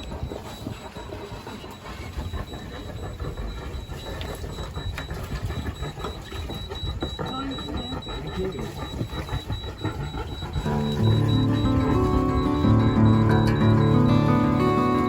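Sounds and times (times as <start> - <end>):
high electronic beeps: 2.0 - 15.0
diesel engine running: 9.8 - 15.0.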